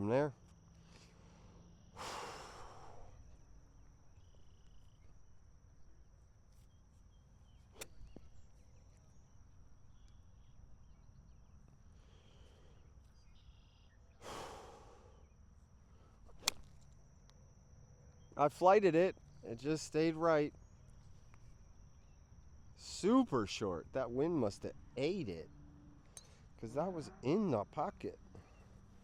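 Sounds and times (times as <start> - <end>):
high insect drone: 0.0 - 29.0
golf club hitting ball: 7.8 - 8.0, 16.4 - 16.8.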